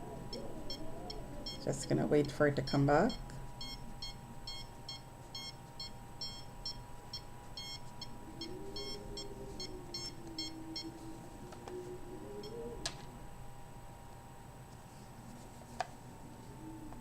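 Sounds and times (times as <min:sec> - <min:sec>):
short high detector beeps: 0:02.7 - 0:11.0.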